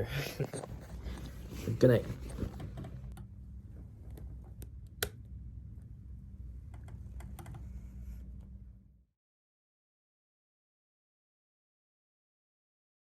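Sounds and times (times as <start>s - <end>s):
low room hum: 0.0s - 9.2s.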